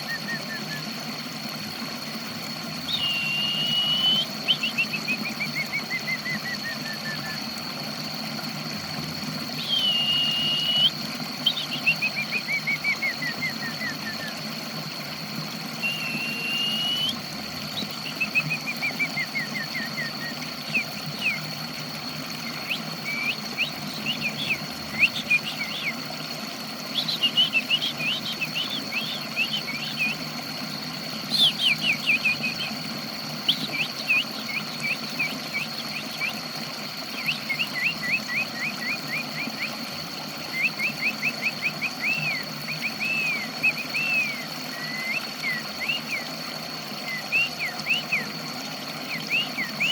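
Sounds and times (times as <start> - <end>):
steady low hum: 0.0 - 49.9
thin high tone: 15.8 - 17.2.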